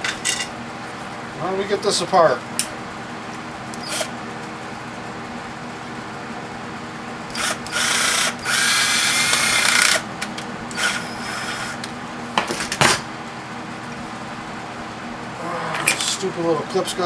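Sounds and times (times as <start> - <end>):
power drill whining: 3.7 - 4.2, 7.3 - 10.0, 10.7 - 11.9.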